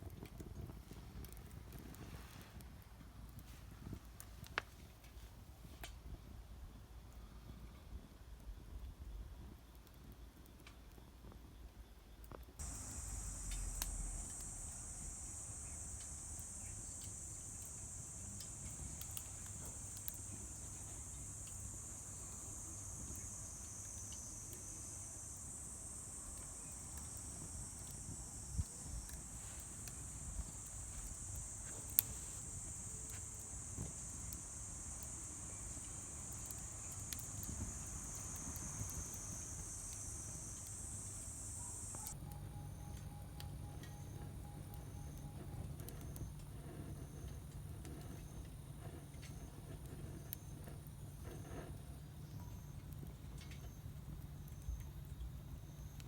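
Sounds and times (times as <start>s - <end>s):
wood fire popping and crackling: 0.0s - 6.3s, 12.6s - 42.2s
crickets chirring: 12.6s - 56.0s.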